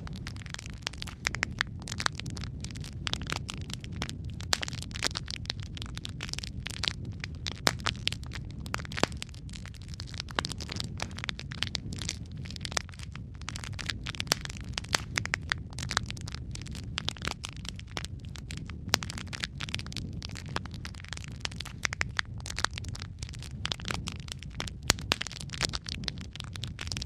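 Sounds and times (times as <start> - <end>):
low rumble of burning: 0.0 - 27.0
wood fire crackling and popping: 0.0 - 27.0.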